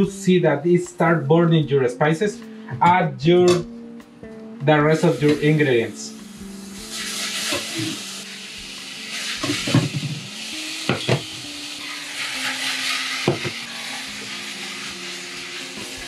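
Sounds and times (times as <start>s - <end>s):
vegetables sizzling in a pot: 5.0s - 16.0s
pots and utensils knocking: 9.4s - 10.3s, 10.9s - 11.4s, 13.2s - 13.6s.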